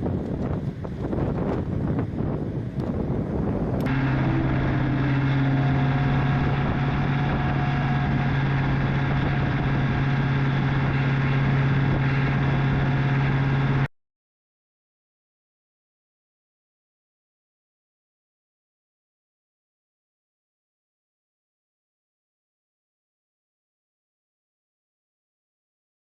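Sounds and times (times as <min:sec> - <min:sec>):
engine humming steadily: 0:00.0 - 0:13.9.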